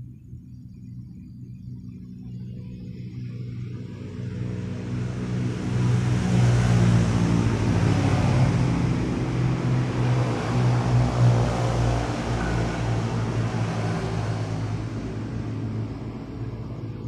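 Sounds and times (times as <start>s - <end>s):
vehicle engine running: 3.7s - 17.0s.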